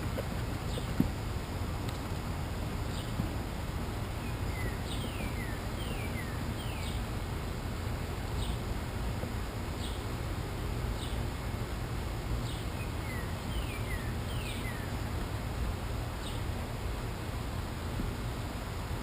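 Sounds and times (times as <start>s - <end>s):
low outdoor rumble: 0.0s - 19.0s
small bird calling: 0.1s - 1.1s, 2.8s - 3.2s, 4.2s - 7.1s, 12.4s - 15.1s.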